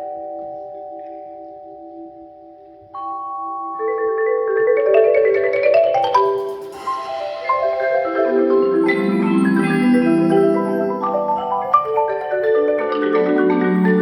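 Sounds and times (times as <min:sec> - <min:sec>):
lower held mallet notes: 0:00.0 - 0:14.0
marimba quick struck notes: 0:06.0 - 0:14.0.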